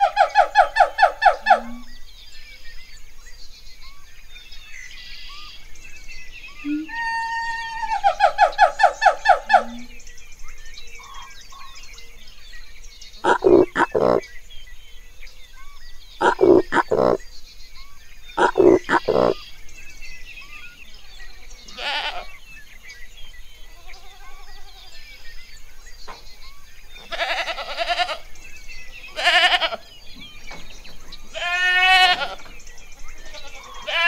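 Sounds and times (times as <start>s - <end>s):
animal grunting: 13.2s - 14.2s, 16.2s - 17.2s, 18.4s - 19.4s
goat bleating: 21.7s - 22.3s, 27.1s - 28.3s, 29.2s - 29.9s, 31.3s - 32.5s, 33.2s - 34.0s.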